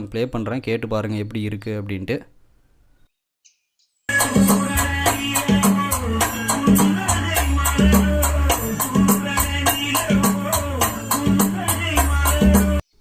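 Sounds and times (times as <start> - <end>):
song with steady beat and deep bass: 4.1 - 12.9.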